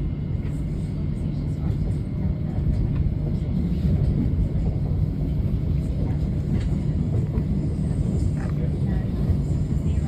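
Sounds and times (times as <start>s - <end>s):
train wheels rumbling on track: 0.0s - 10.0s.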